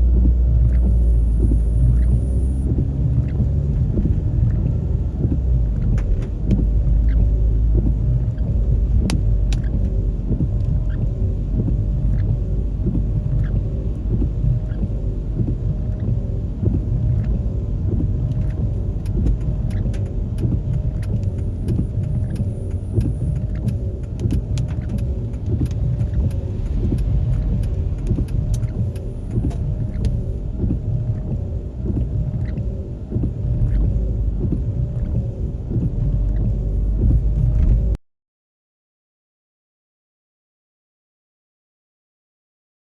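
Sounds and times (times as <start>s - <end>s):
vehicle driving rumble: 0.0s - 38.0s
faint clicks: 17.1s - 37.9s.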